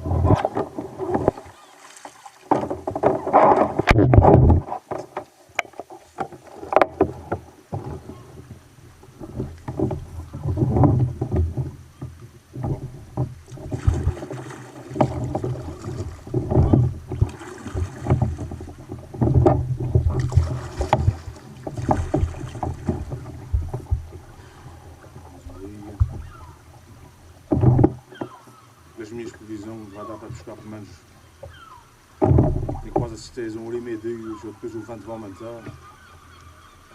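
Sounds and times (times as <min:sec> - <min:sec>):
paddle strokes splashing water: 0:00.0 - 0:36.9
small knocks: 0:00.2 - 0:08.6, 0:09.2 - 0:24.3, 0:25.0 - 0:26.6, 0:27.4 - 0:28.6, 0:32.2 - 0:33.3.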